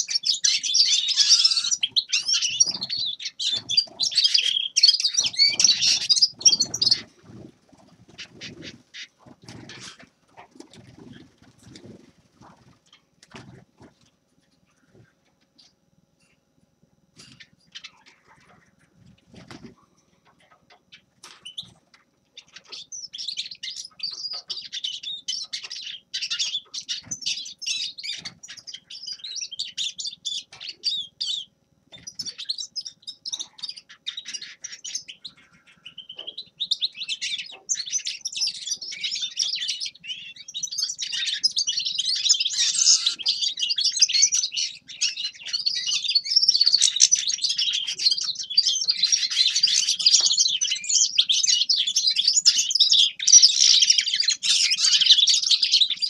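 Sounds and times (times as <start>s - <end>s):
goldfinch twittering song: 0.0s - 7.1s, 22.4s - 56.0s.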